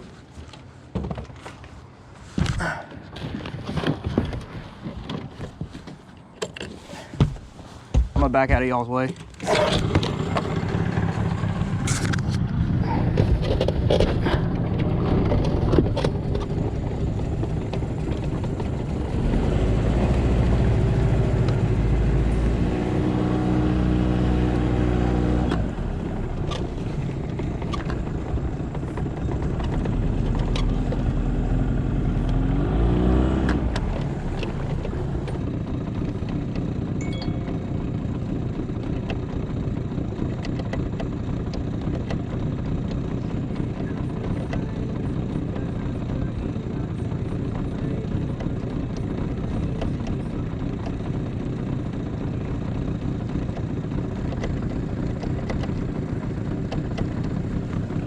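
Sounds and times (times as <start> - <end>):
boat motor running: 8.2 - 58.0.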